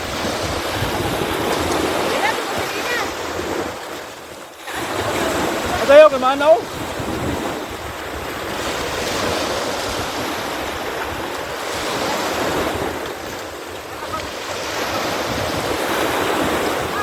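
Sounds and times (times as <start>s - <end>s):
rough sea water rushing: 0.0s - 17.0s
wind buffeting microphone: 0.0s - 17.0s.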